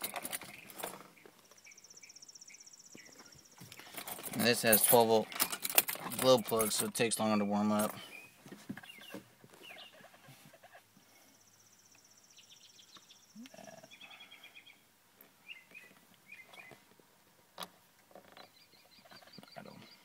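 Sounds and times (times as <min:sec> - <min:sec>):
faint bird chirps: 0:00.4 - 0:04.0, 0:08.0 - 0:16.8, 0:18.3 - 0:20.0.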